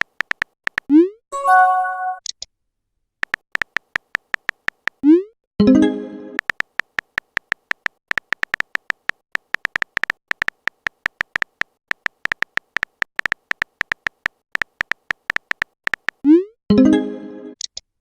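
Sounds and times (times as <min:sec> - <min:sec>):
message chime: 0:01.4 - 0:02.2, 0:05.6 - 0:06.4.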